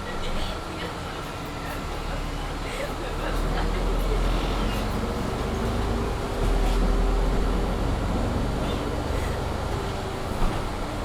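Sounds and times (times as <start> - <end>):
bus engine rumble: 0.0 - 11.0
loud bus heating: 3.8 - 11.0.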